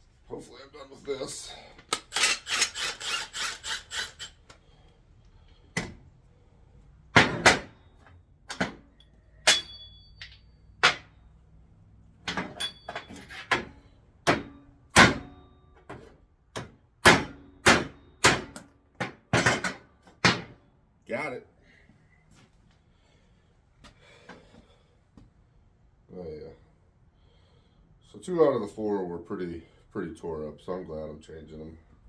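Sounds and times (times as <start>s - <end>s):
hammer striking steel parts: 8.5s - 11.1s, 12.3s - 15.4s.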